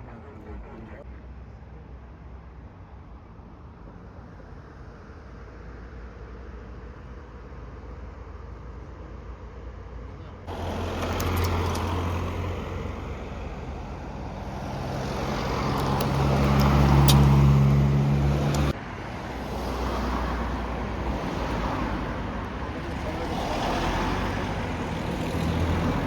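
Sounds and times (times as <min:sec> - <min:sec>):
traffic noise: 0:00.0 - 0:26.0
vehicle engine passing: 0:10.5 - 0:26.0.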